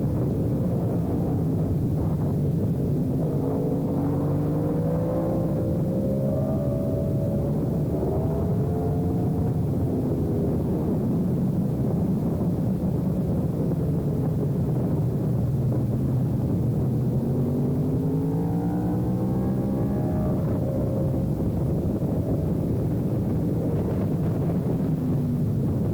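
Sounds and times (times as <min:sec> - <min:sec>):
wind rushing noise: 0:00.0 - 0:25.9
motorcycle engine revving: 0:03.2 - 0:11.4, 0:16.4 - 0:25.9.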